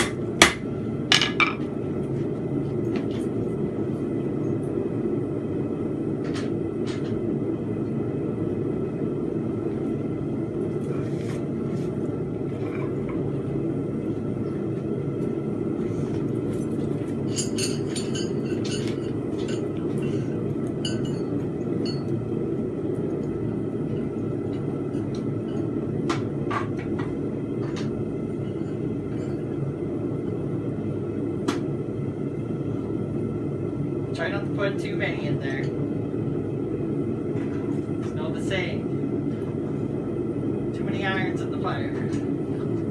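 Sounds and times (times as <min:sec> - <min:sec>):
metal clinks: 0:16.5 - 0:20.2.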